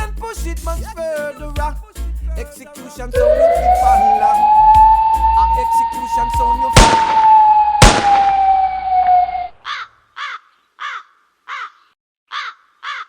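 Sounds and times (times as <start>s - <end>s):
high tone falling in pitch: 3.2s - 9.6s
loud bangs: 3.2s - 9.6s
crow cawing: 9.6s - 13.0s.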